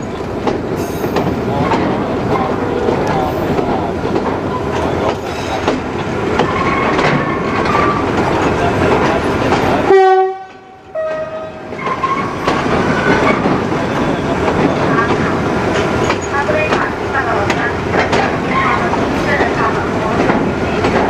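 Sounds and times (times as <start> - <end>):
wheels clattering over rail joints: 0.0 - 9.9, 10.5 - 21.0
wheel squeals: 6.3 - 8.2, 11.2 - 15.0.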